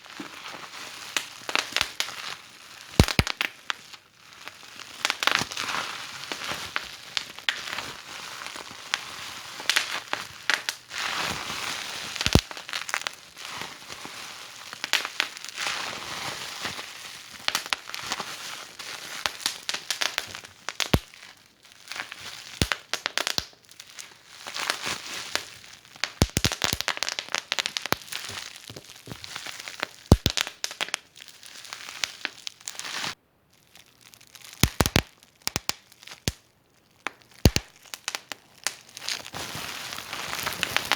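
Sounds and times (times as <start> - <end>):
wood fire crackling: 3.0 - 3.5, 12.2 - 13.1, 19.2 - 21.1, 25.4 - 32.8, 34.5 - 36.4, 37.0 - 40.9.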